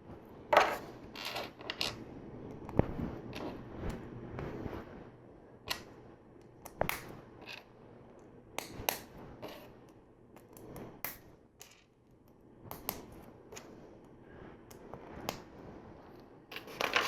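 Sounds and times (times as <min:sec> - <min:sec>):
plastic pieces snapping together: 0:06.6 - 0:07.1, 0:12.7 - 0:13.1.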